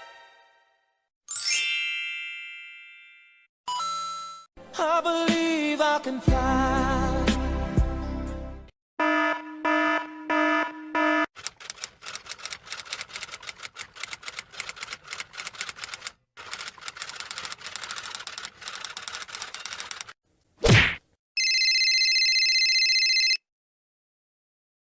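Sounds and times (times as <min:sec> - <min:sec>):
electronic alarm beeps: 0:09.0 - 0:11.3
typewriter keys clattering: 0:11.4 - 0:20.2
punch sound effect: 0:20.6 - 0:21.0.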